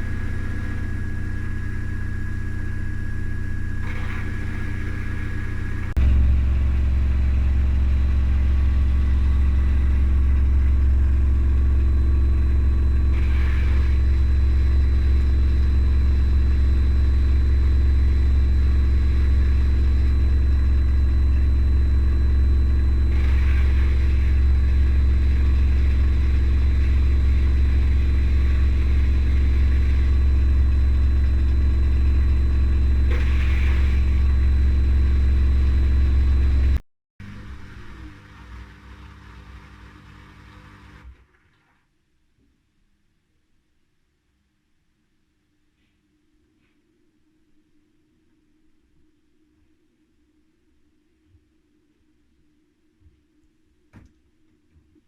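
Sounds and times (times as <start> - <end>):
washing machine spinning: 0.0 - 41.3.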